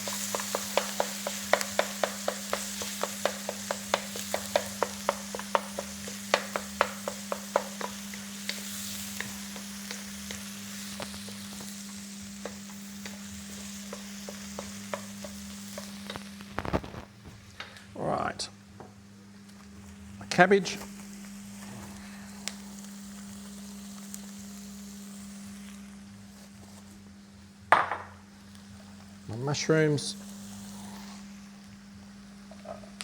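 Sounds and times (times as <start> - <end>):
utensil clacking against pan: 0.0 - 10.4
stir-fry sizzling in a pan: 0.0 - 17.7, 19.0 - 33.0.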